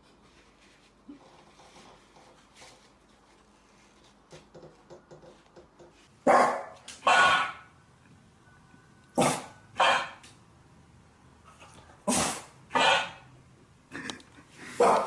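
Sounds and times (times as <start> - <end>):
dog barking: 6.2 - 7.7, 9.2 - 10.2, 12.7 - 13.2, 14.8 - 15.0.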